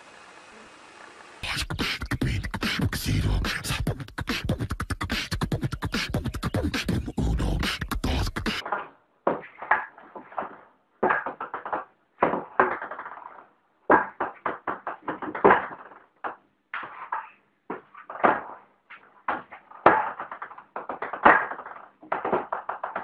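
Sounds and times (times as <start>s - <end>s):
beatboxing: 1.4s - 8.6s.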